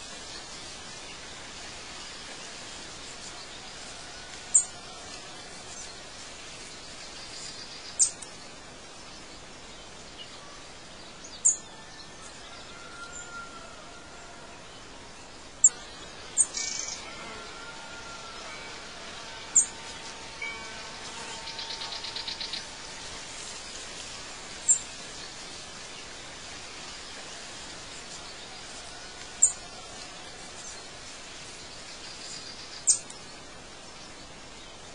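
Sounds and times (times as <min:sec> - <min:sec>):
outdoor hiss: 0:00.0 - 0:34.9
bird trill: 0:16.4 - 0:17.6, 0:18.2 - 0:22.8.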